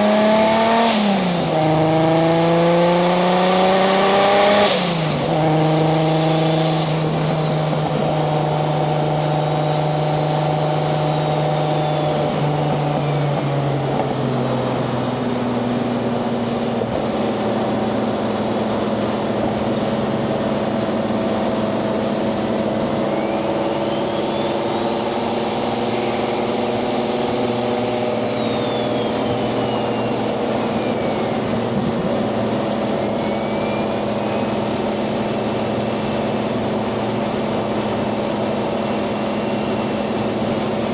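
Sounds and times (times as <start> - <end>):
turbo whistle: 0.0 - 13.5, 22.6 - 40.9
car engine droning: 0.0 - 40.9.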